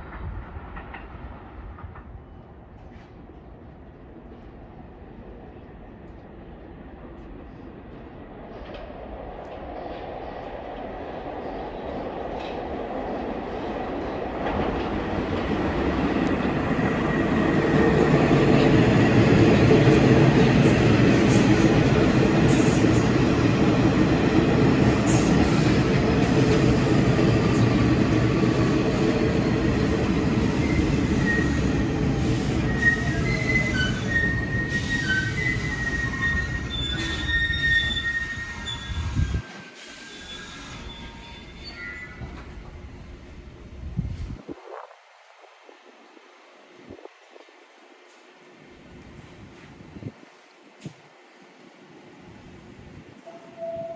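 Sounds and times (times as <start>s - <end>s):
subway train rumbling: 0.0s - 53.9s
wheels squealing: 30.4s - 42.6s.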